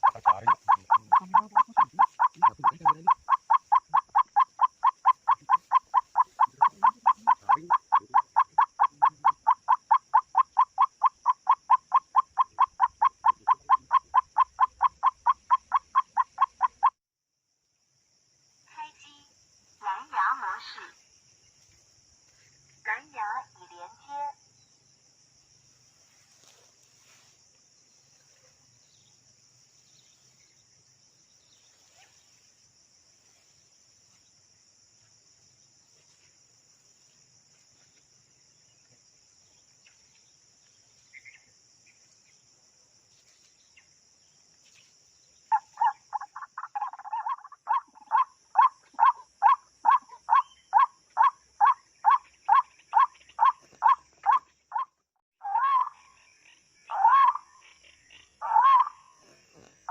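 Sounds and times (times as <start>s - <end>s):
waterhen calling rapidly: 0.0s - 16.9s, 45.5s - 54.8s, 58.4s - 59.0s
crickets trilling: 0.0s - 59.9s.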